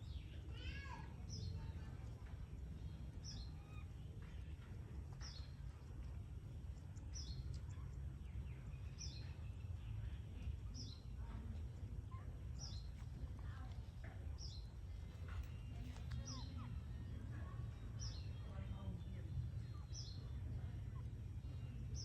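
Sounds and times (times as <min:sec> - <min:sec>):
steady low rumble: 0:01.5 - 0:22.0
small bird chirping: 0:14.4 - 0:18.7.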